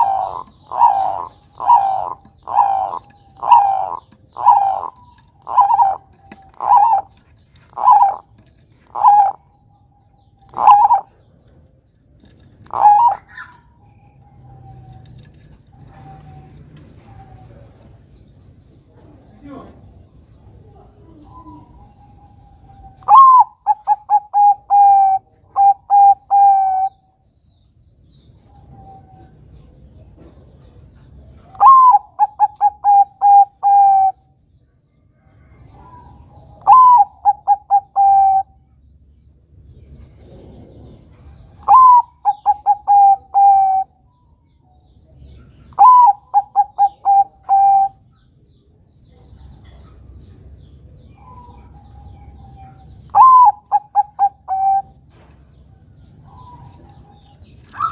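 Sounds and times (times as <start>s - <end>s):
dove cooing: 0.0s - 11.4s, 12.6s - 18.0s, 20.6s - 27.0s, 31.4s - 34.3s, 35.4s - 38.7s, 40.0s - 44.1s, 45.5s - 48.1s, 51.1s - 55.2s.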